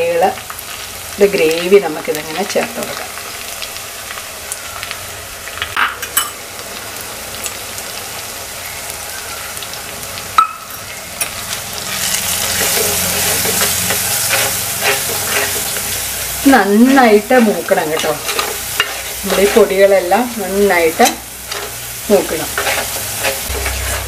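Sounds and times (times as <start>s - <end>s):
spice paste sizzling in oil: 0.0s - 24.0s
metal ladle scraping pot: 11.2s - 16.3s, 17.8s - 19.7s, 21.0s - 24.0s.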